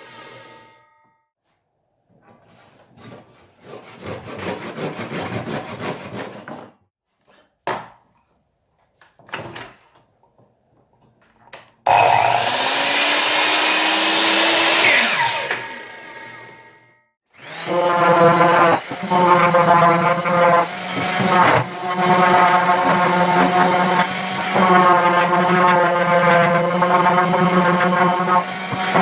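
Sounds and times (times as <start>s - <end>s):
hand sawing wood: 2.5s - 6.8s, 11.9s - 15.8s, 17.4s - 29.0s
electric power tool running: 11.9s - 16.8s, 17.4s - 29.0s.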